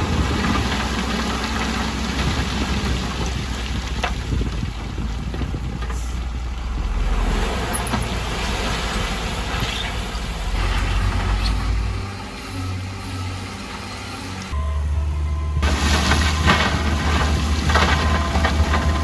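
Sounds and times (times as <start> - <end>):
diesel machinery rumbling: 0.0 - 19.0.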